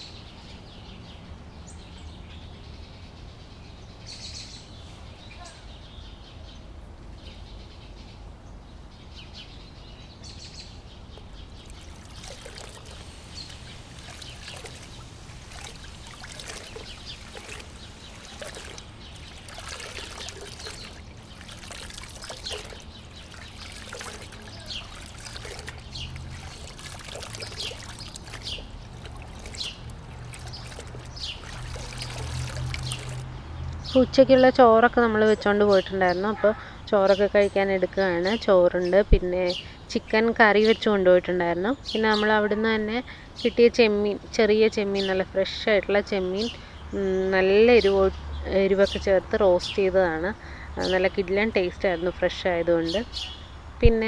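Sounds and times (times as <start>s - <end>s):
birds chirping: 9.2s - 34.1s, 44.6s - 54.0s
water splashing and trickling: 10.9s - 34.0s.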